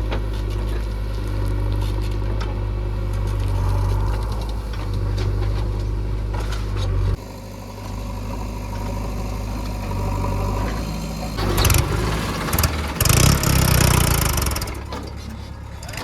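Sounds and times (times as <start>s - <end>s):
diesel engine running: 0.0s - 16.0s
rough rattling noise: 3.3s - 14.9s.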